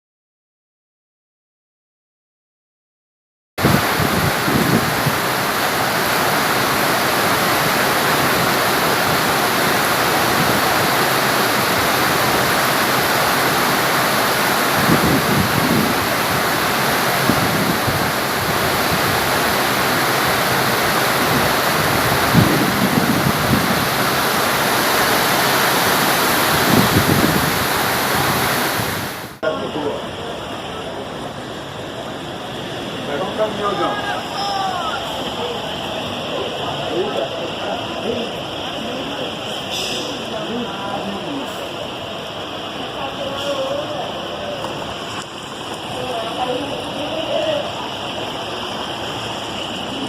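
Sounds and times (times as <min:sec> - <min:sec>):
heavy pouring rain: 0:03.6 - 0:50.0
running water: 0:03.6 - 0:50.0.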